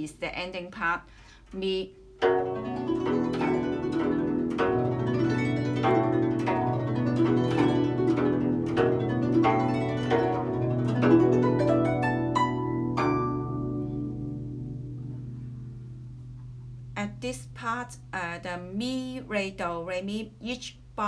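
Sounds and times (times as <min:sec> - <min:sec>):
guzheng plucked notes: 0:02.1 - 0:18.3.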